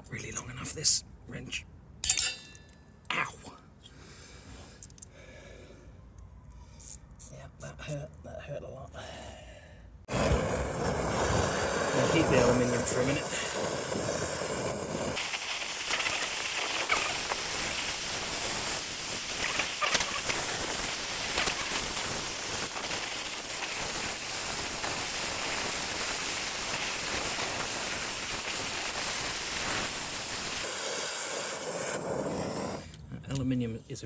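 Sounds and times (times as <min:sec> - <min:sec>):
heating torch hissing: 0:10.1 - 0:33.0.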